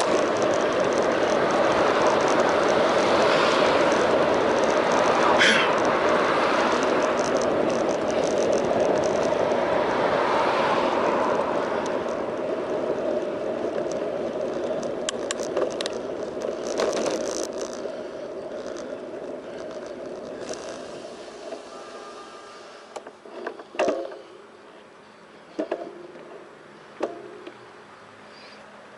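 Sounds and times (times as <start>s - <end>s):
sharp clicks and rattles: 0.0s - 21.7s
bicycle rolling and wind noise: 0.0s - 28.9s.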